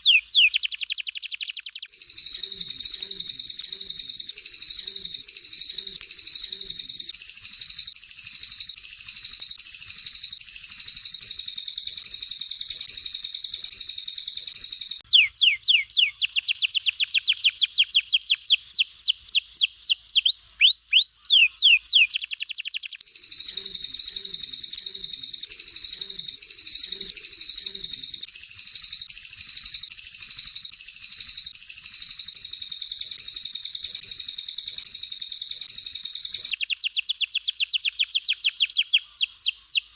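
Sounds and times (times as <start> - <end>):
high bird trill: 0.0 - 39.9
downward-sweeping whistled notes: 1.9 - 15.0, 23.0 - 36.5.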